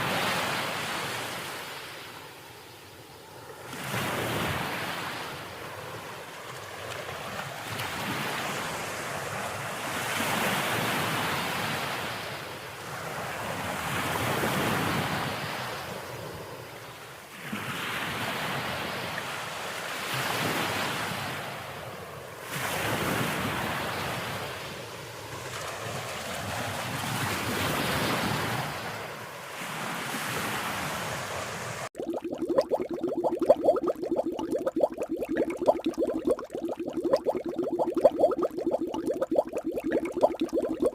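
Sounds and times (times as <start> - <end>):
ocean waves washing in: 32.0 - 40.9.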